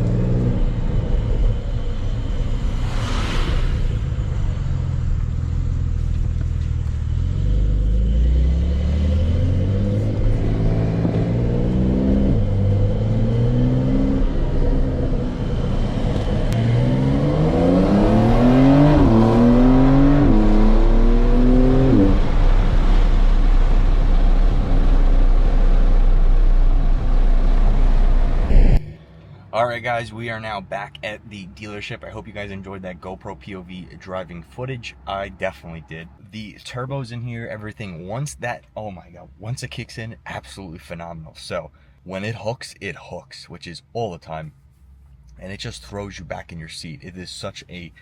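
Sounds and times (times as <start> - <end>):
car engine accelerating hard: 0.0 - 29.0
road rumble: 0.0 - 48.0.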